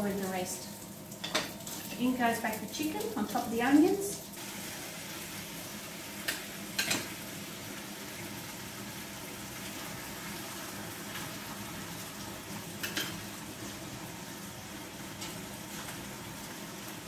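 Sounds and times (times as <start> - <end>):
onions and chicken sizzling: 0.0 - 17.0.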